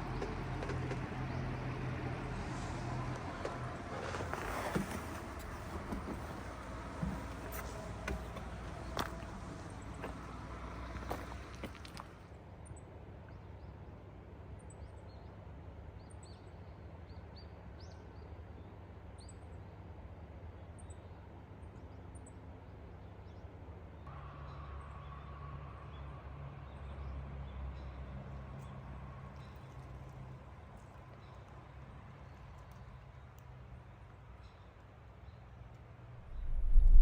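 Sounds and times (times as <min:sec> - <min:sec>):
low rumble: 0:36.2 - 0:37.0
low steady hum: 0:36.2 - 0:37.0.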